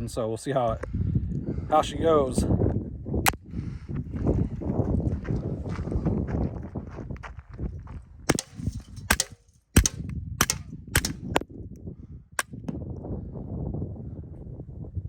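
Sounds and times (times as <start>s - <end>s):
suppressed pistol shots: 8.3s - 11.4s.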